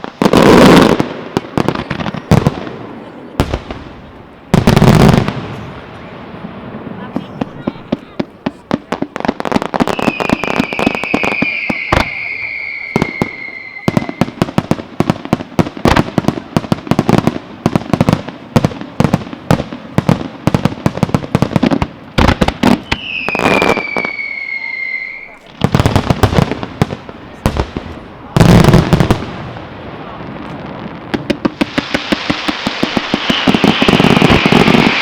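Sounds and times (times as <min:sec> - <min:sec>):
fireworks bangs and crackles: 0:00.0 - 0:35.0
firework whistles falling in pitch: 0:09.8 - 0:14.4, 0:22.7 - 0:25.4, 0:33.0 - 0:35.0.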